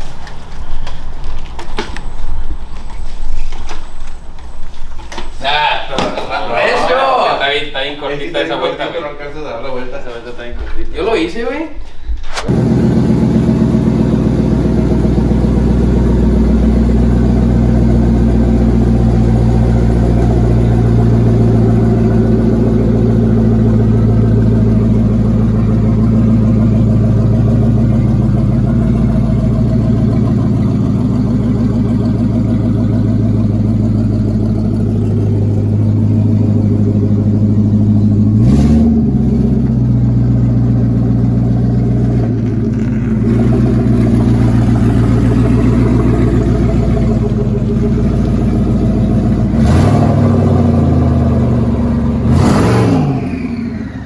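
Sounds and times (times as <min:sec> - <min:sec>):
engine idling: 0:00.0 - 0:10.8, 0:12.5 - 0:54.0.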